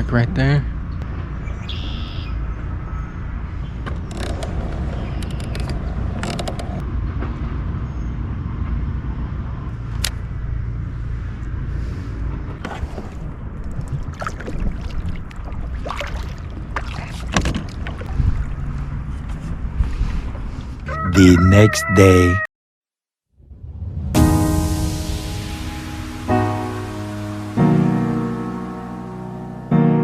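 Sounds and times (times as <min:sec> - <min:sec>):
clicks and knocks from hull: 0:16.8 - 0:18.1.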